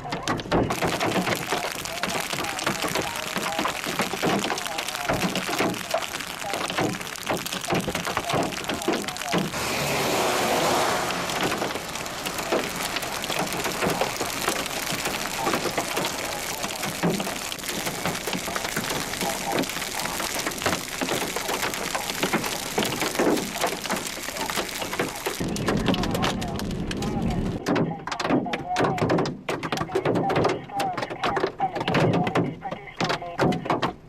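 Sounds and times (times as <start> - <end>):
hailstones hitting car body: 0.0 - 34.0
rain hissing: 0.7 - 27.6.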